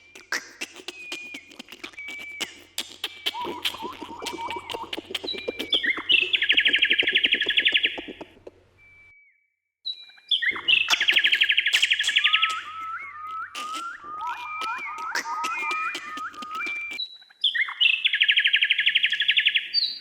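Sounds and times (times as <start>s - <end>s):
bird trilling: 0.0s - 8.5s, 10.3s - 17.0s
sharp bird clicks: 0.0s - 8.5s, 10.5s - 13.0s, 13.6s - 17.0s
whistled bird notes: 0.0s - 9.3s, 9.9s - 20.0s.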